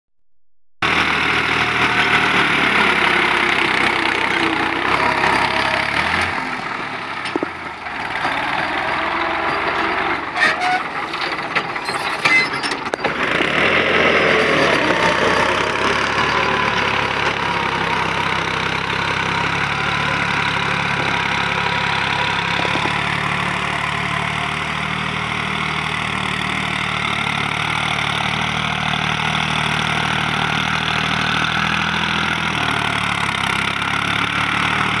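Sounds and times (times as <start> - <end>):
tractor diesel engine running: 0.8 - 35.0.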